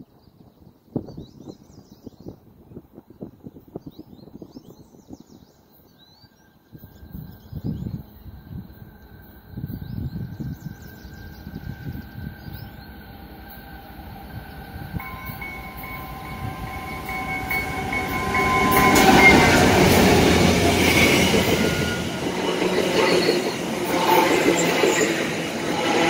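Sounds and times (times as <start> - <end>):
train passing: 8.2 - 26.0.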